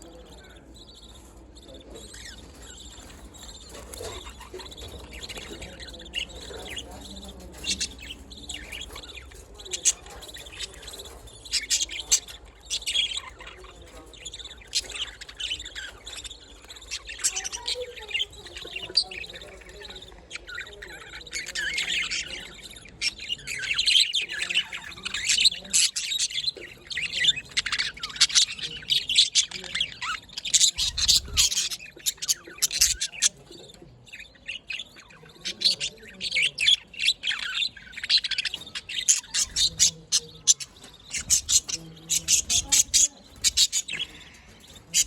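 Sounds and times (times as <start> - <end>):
budgerigars chirping and warbling: 0.0 - 45.0.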